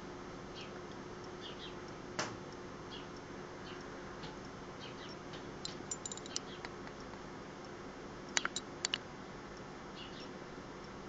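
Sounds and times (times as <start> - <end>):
faint steady hum: 0.0 - 11.0
small bird chirping: 1.4 - 1.8, 4.8 - 6.7, 8.4 - 8.7, 10.0 - 10.4
light clicks: 8.3 - 9.0.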